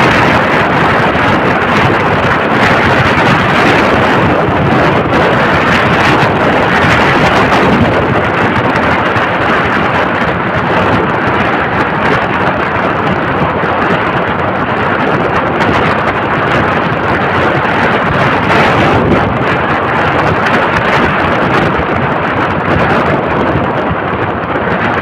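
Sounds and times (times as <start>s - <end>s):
road noise: 0.0s - 19.8s
wind roaring over microphone: 0.0s - 25.0s.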